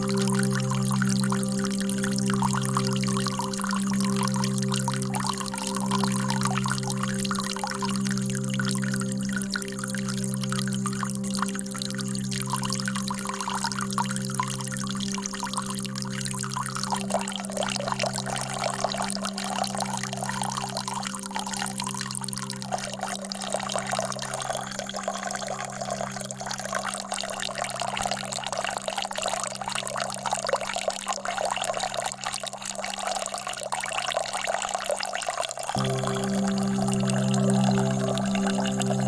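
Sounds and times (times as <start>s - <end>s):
water trickling and pouring: 0.0s - 39.0s
low steady hum: 35.8s - 39.0s.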